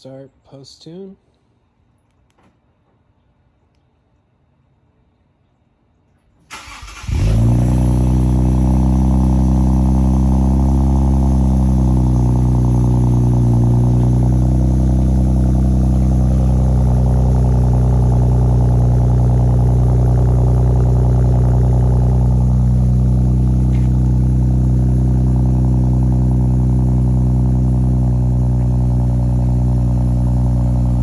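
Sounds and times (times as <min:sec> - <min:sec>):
car engine idling: 0:06.5 - 0:31.0.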